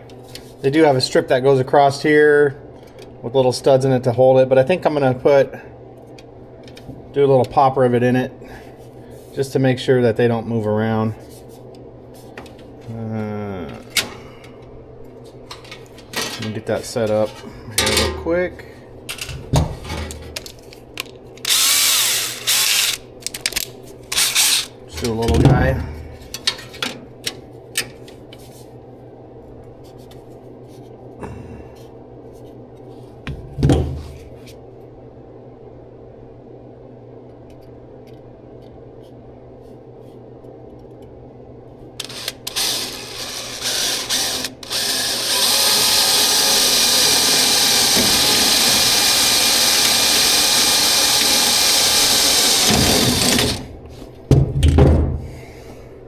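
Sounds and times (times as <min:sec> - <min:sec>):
power tool running on metal: 0:21.5 - 0:23.1, 0:24.1 - 0:24.8, 0:42.0 - 0:53.7
thump: 0:54.3 - 0:55.3.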